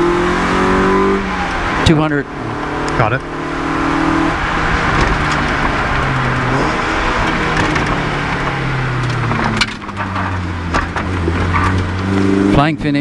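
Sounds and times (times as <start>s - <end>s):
rally car engine pulling hard: 0.0s - 13.0s
road and tyre noise: 0.0s - 13.0s
sharp knocks and rattles: 9.0s - 12.2s.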